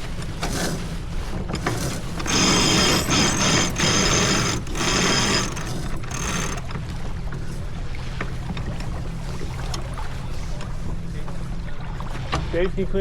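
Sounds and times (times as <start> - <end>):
winch ratcheting clicks: 1.6 - 6.9.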